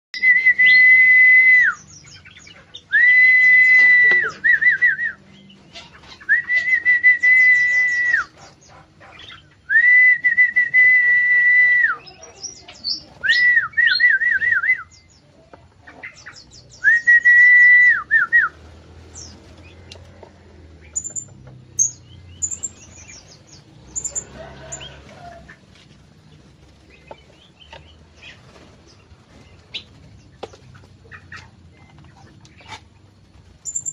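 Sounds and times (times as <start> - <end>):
loud whistles with trill: 6.3 - 8.3.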